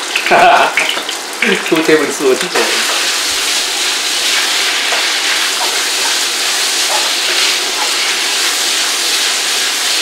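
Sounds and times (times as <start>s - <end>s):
food sizzling in a wok: 2.2s - 10.0s.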